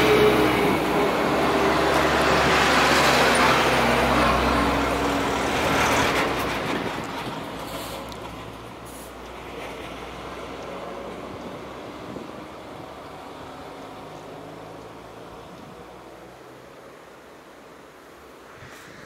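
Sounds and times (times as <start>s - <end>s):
freight train rumbling: 0.0s - 13.4s.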